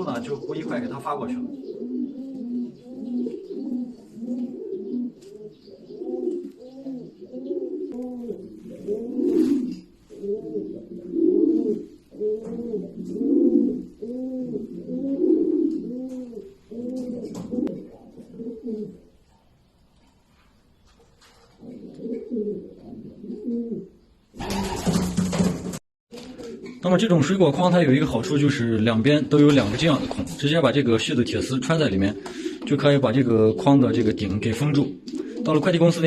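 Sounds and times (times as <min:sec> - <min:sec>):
pigeons cooing: 0:00.0 - 0:19.2, 0:21.2 - 0:25.0, 0:26.1 - 0:26.8, 0:31.0 - 0:36.0.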